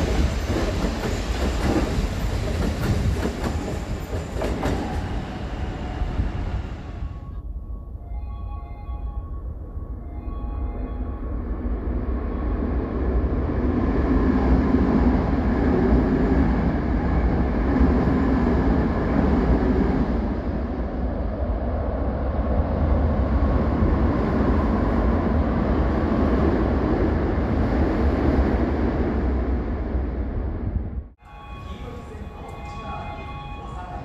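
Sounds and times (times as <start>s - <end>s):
train wheels rumbling on rails: 0.0s - 7.1s.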